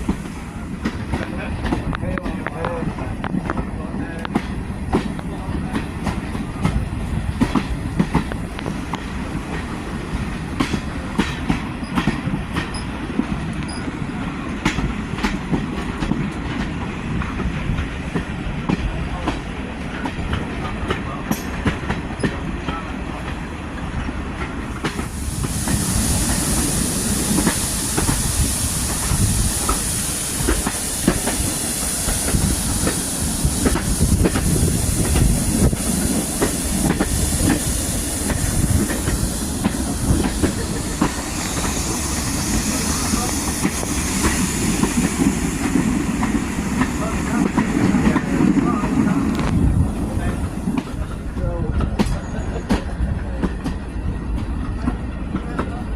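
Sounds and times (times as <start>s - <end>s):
train rumbling: 0.0s - 55.9s
loud steady hiss: 24.8s - 51.3s.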